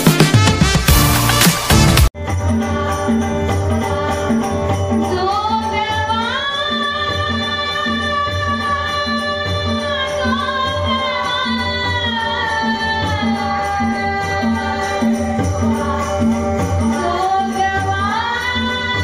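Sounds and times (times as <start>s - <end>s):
drum beat: 0.0s - 2.2s
jingling percussion: 0.0s - 19.0s
women singing devotional song: 2.5s - 19.0s.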